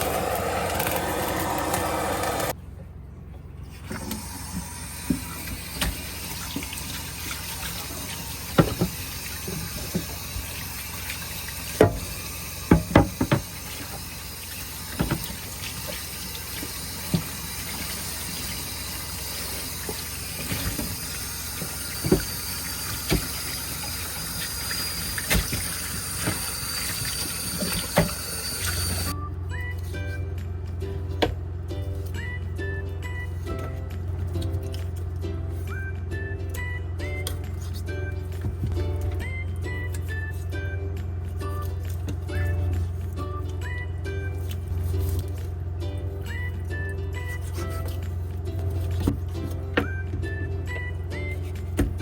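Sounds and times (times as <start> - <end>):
tap water running into sink: 3.9 - 29.2.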